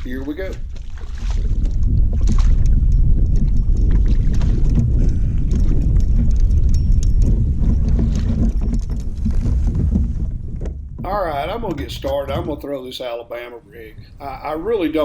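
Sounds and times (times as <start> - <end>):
wind buffeting microphone: 0.0 - 15.0
small knocks: 4.4 - 12.7.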